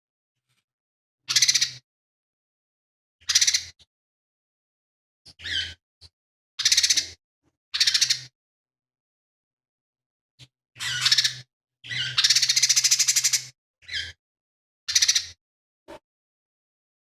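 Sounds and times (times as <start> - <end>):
bird singing harsh rattling phrases: 1.3 - 1.8, 3.2 - 3.9, 5.3 - 5.8, 6.6 - 7.2, 7.8 - 8.3, 10.8 - 14.2, 14.9 - 15.4.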